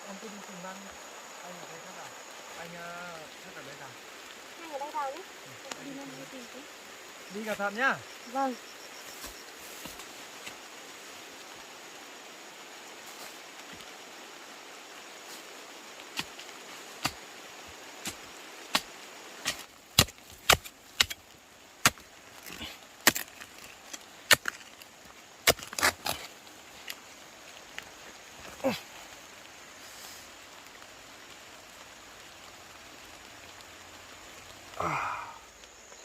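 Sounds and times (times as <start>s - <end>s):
hand tool chopping strikes: 18.7s - 21.2s.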